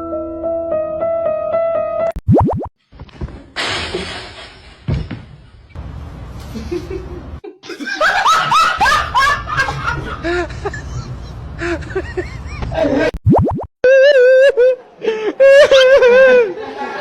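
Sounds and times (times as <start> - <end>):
people laughing: 6.5 - 13.1, 13.9 - 17.0.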